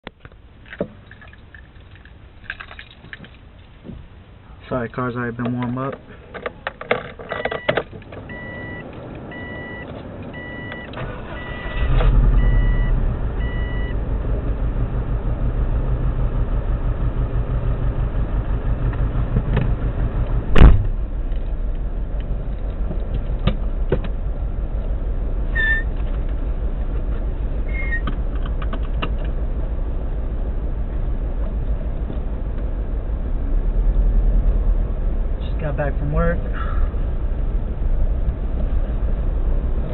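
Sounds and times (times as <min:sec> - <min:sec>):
car engine starting and idling: 0:00.0 - 0:39.9
sharp knock: 0:20.5 - 0:20.9.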